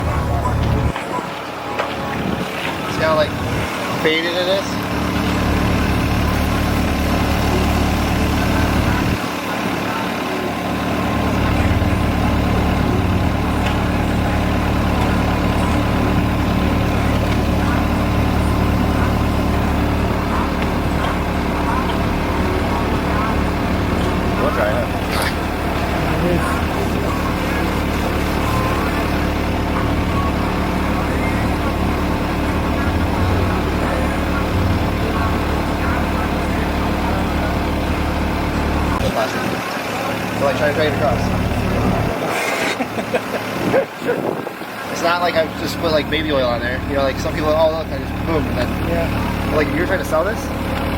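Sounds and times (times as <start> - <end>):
heavy engine idling: 0.0 - 50.9.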